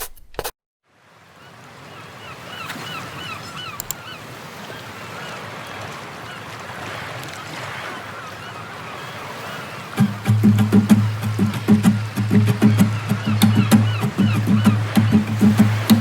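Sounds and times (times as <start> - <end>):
surf washing: 0.9 - 16.0
bird honking: 1.9 - 16.0.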